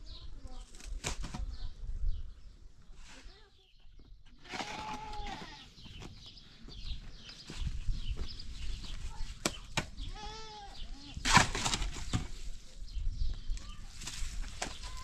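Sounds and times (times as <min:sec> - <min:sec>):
goat bleating: 0:04.5 - 0:05.7, 0:10.1 - 0:10.8.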